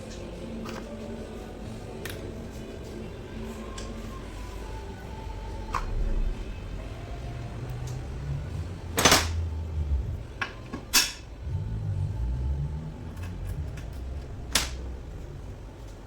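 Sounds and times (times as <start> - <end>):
low shuffling and rumbling: 0.0 - 16.0
metal parts clanking: 9.0 - 9.4, 10.4 - 11.4.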